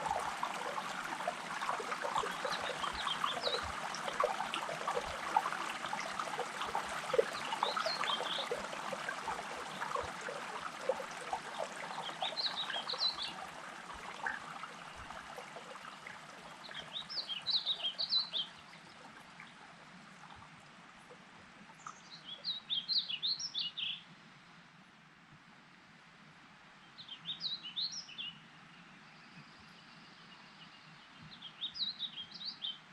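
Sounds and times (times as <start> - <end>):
songbird singing: 0.0 - 19.6, 21.8 - 24.1, 26.9 - 32.9
trickling water: 0.0 - 23.5.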